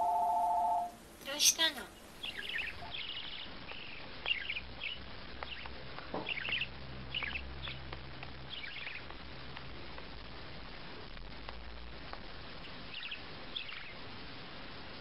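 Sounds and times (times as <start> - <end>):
small bird chirping: 0.0 - 9.5, 12.6 - 14.1.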